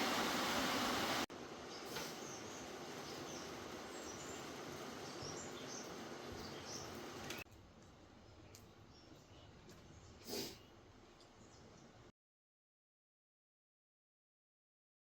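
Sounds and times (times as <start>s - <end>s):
steady outdoor hiss: 0.0s - 12.1s
small birds chirping: 1.7s - 7.5s, 8.1s - 12.1s.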